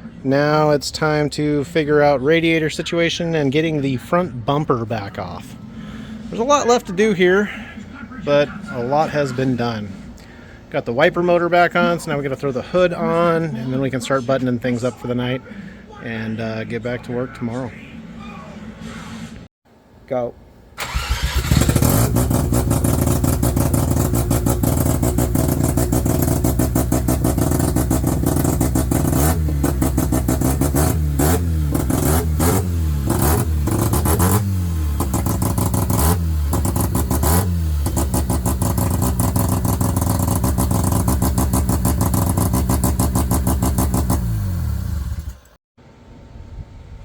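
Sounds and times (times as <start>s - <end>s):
rotary engine idling and revving: 20.8s - 45.6s.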